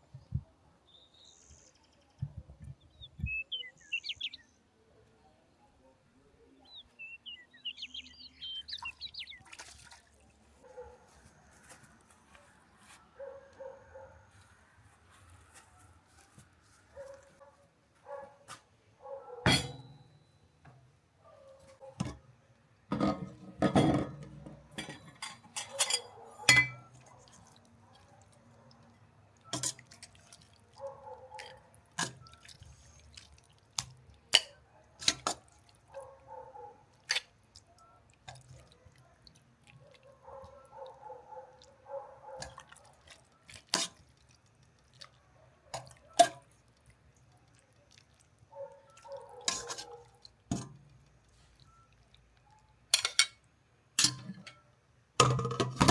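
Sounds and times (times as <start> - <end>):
dishes and utensils clinking: 19.5 - 20.2, 22.9 - 27.1, 29.5 - 29.9, 52.9 - 53.4, 54.0 - 54.6.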